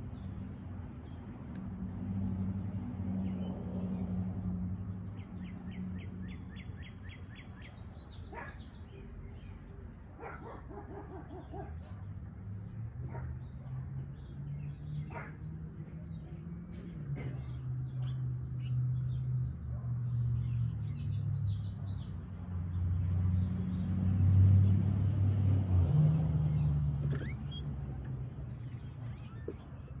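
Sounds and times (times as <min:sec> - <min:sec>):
small birds chirping: 0:05.0 - 0:24.0.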